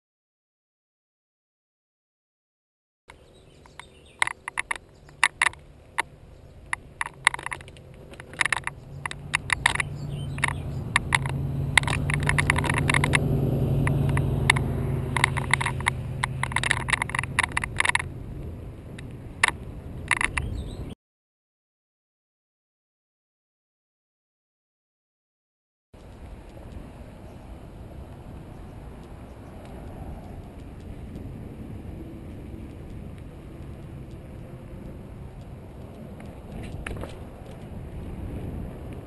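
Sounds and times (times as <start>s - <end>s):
low rumble of wind: 3.1s - 21.0s, 26.0s - 39.0s
camera rattling in housing: 3.6s - 6.1s, 6.7s - 18.1s, 19.4s - 20.7s, 36.3s - 37.7s.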